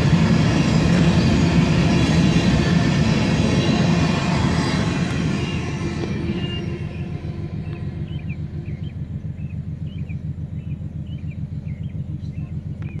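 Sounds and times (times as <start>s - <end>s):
car engine idling: 0.0s - 13.0s
hopper cars rumbling past: 0.0s - 13.0s
birds chirping: 4.1s - 13.0s.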